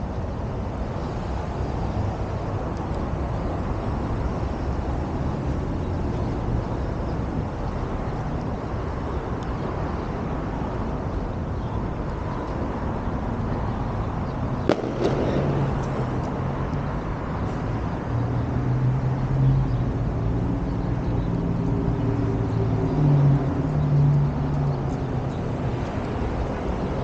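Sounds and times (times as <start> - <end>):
street noise: 0.0 - 27.0
vehicle engine humming: 14.7 - 18.5.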